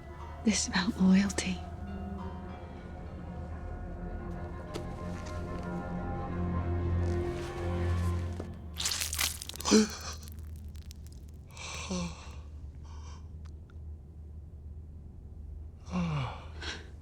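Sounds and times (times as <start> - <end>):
person sighing: 9.4 - 10.4, 11.6 - 12.4.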